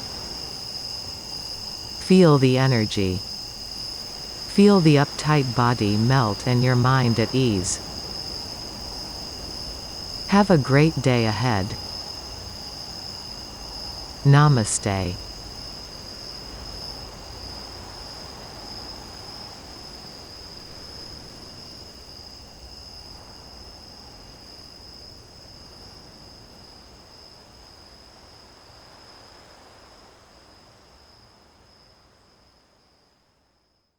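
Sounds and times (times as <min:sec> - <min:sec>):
crickets chirring: 0:00.0 - 0:11.0
faint low background hiss: 0:02.0 - 0:08.2, 0:10.1 - 0:12.6, 0:14.1 - 0:15.5.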